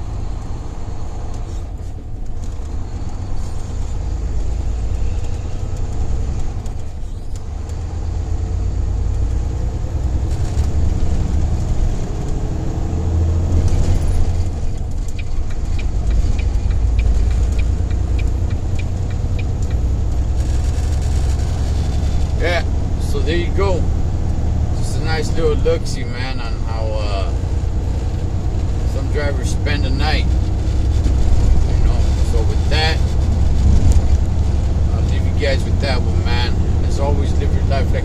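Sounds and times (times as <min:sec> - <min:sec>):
diesel truck engines rumbling: 0:00.0 - 0:38.0
light regular ticking: 0:14.2 - 0:22.4.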